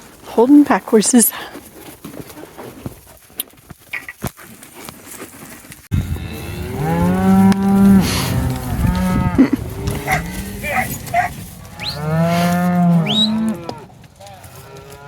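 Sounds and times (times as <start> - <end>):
cattle mooing: 5.9 - 15.0.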